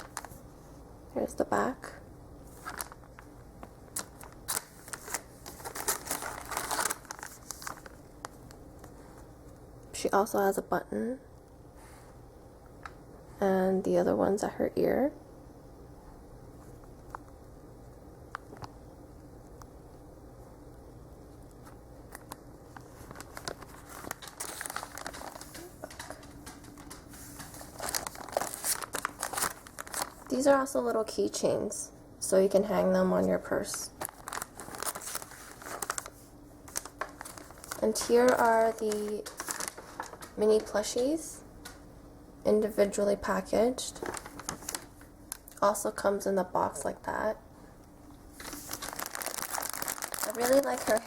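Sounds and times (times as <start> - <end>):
plastic packaging crinkling: 0.0 - 0.6, 2.4 - 9.3, 21.5 - 31.2, 33.2 - 41.8, 43.8 - 46.0, 48.3 - 51.0
plush toys rustling and clicking: 22.1 - 30.5, 34.0 - 40.8, 48.4 - 51.0.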